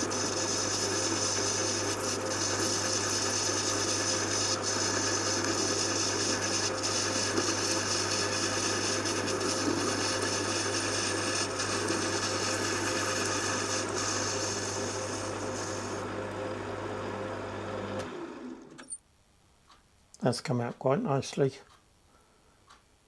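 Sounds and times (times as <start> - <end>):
lathe motor hum: 0.0 - 18.8.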